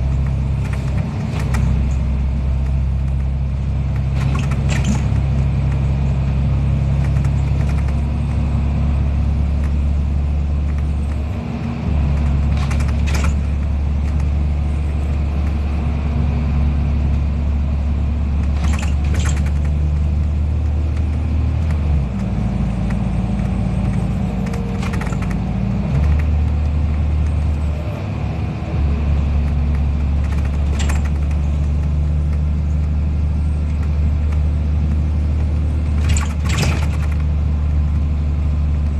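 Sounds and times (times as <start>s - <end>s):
rattles: 0.0s - 8.4s, 11.9s - 15.8s, 18.4s - 27.7s, 29.4s - 38.1s
bus engine drone: 0.0s - 38.9s.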